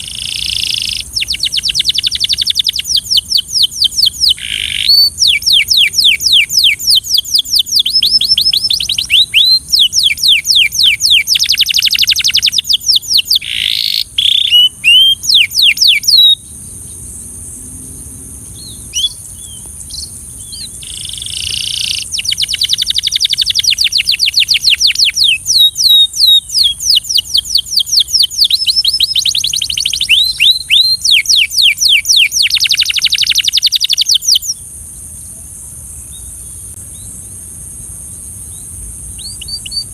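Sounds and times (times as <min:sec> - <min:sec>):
canary trilling: 0:00.0 - 0:16.4.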